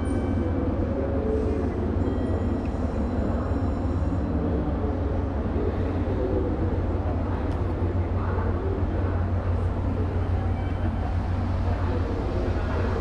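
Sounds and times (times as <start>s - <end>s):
electric trains humming: 0.0s - 13.0s.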